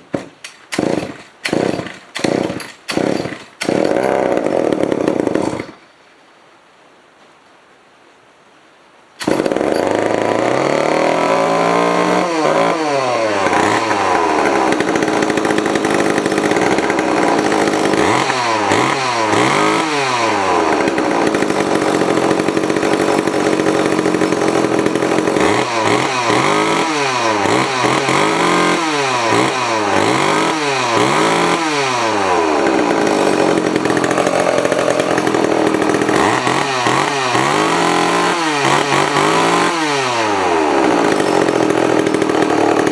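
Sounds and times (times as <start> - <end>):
two-stroke chainsaw revving: 0.0 - 5.8, 9.2 - 42.9.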